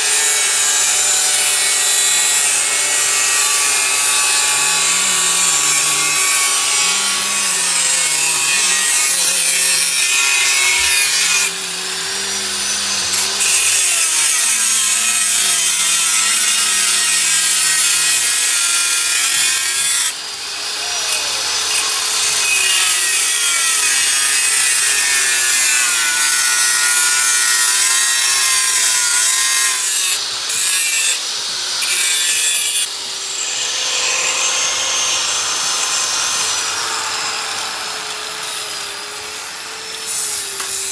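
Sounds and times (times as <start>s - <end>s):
power tool grinding: 0.0s - 40.9s.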